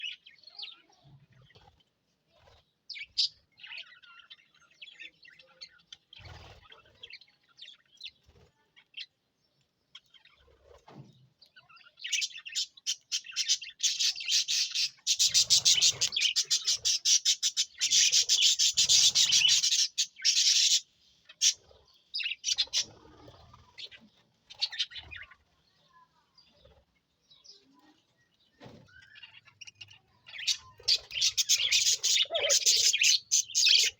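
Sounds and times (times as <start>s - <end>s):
budgerigars chirping: 12.1s - 21.6s, 22.2s - 23.1s, 29.0s - 33.9s.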